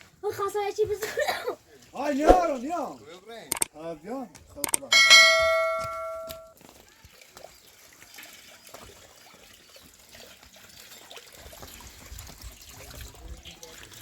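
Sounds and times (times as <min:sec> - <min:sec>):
faint trickling water: 0:00.0 - 0:14.0
struck metal clanging: 0:04.8 - 0:06.5.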